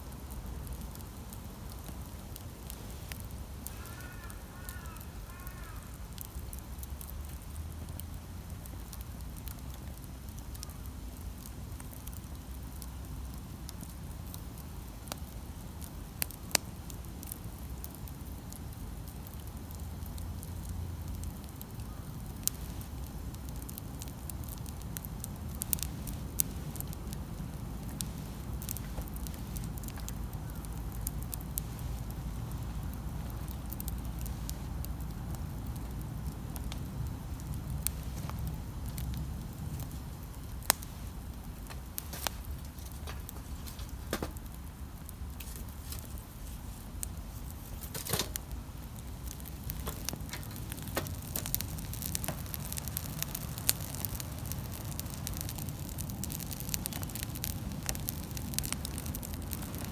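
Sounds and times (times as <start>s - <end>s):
campfire wood crackling and popping: 0.0s - 59.9s
low rumble of flames: 0.0s - 59.9s.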